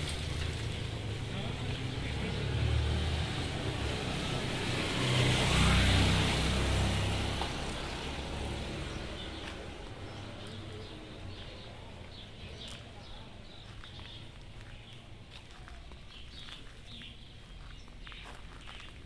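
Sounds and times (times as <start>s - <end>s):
vehicle passing by: 0.0s - 12.1s.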